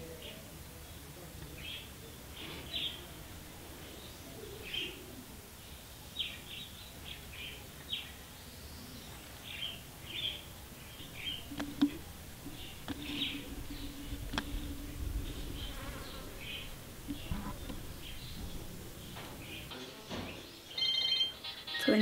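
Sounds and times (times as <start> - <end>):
small birds chirping: 0.0 - 22.0
sharp clicks: 11.3 - 14.6.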